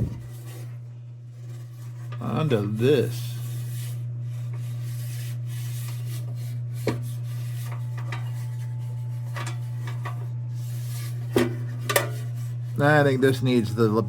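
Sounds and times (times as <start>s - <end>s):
steady low hum: 0.0s - 14.0s
metal lantern parts clinking: 9.3s - 10.2s, 11.4s - 12.3s.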